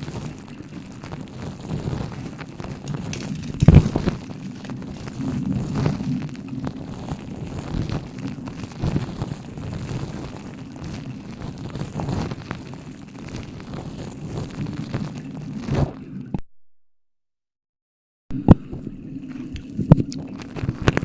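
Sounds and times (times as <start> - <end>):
blowing on microphone: 0.0 - 16.4.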